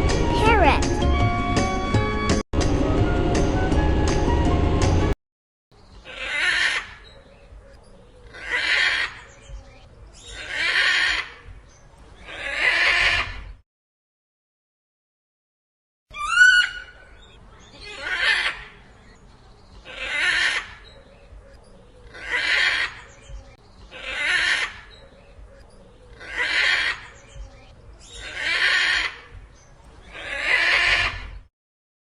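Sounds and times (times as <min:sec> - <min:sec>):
animal calling: 0:06.0 - 0:07.3, 0:08.2 - 0:09.4, 0:16.1 - 0:19.2, 0:19.8 - 0:27.4, 0:28.0 - 0:29.4, 0:30.1 - 0:31.4.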